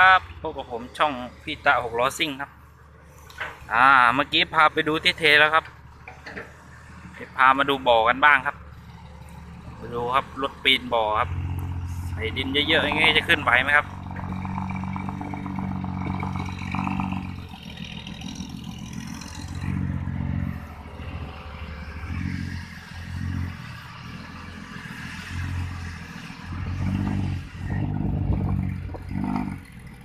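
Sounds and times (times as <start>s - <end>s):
dump truck diesel engine climbing: 0.0s - 30.0s.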